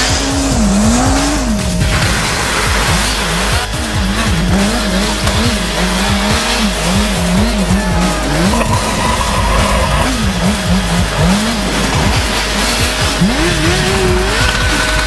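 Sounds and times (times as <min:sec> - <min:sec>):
motorbike engine revving: 0:00.0 - 0:15.0
tyres sliding on ice: 0:07.9 - 0:10.4.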